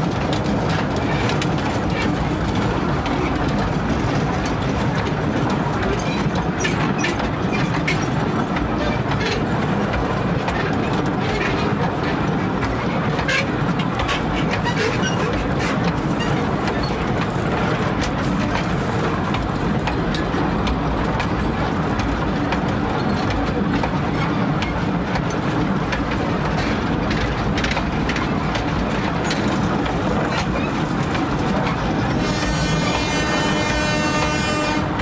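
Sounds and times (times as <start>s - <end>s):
train rumbling on rails: 0.0s - 35.0s
wheel clicks on rails: 0.0s - 35.0s
train horn: 32.2s - 35.0s.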